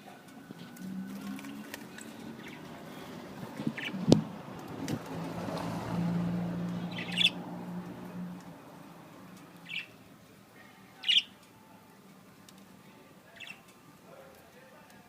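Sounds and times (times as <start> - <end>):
parakeets chirping: 1.4 - 4.4, 6.6 - 7.7, 9.6 - 10.0, 11.0 - 11.3, 13.3 - 13.6.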